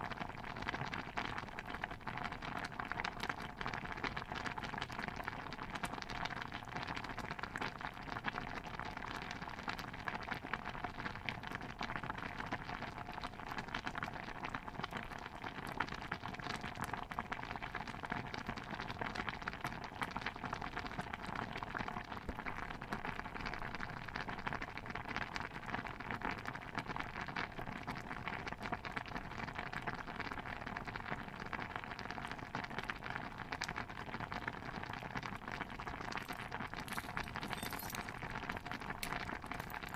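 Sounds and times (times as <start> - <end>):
dense pattering with crackles: 35.8 - 39.9.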